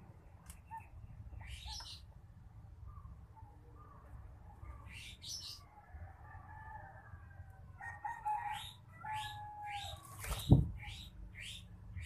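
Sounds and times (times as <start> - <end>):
drawn-out bird calls: 8.2 - 12.0.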